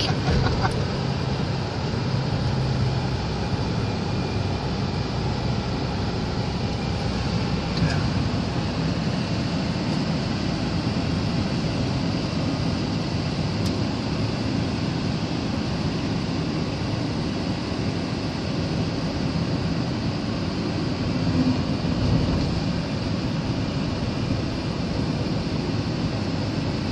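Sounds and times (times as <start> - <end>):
storm wind blowing hard: 0.0 - 4.6.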